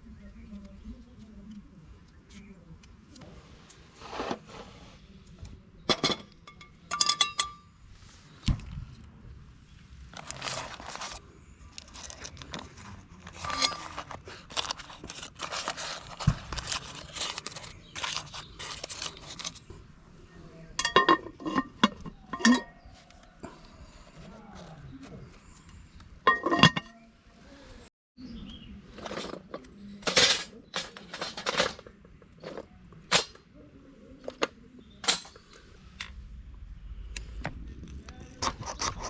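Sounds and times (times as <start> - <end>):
metal cookware clinking: 5.9 - 7.8, 13.4 - 14.2, 20.8 - 22.8, 26.3 - 27.0, 30.0 - 31.9, 32.5 - 33.4, 35.0 - 35.6
packaging rustling and crinkling: 10.1 - 19.8.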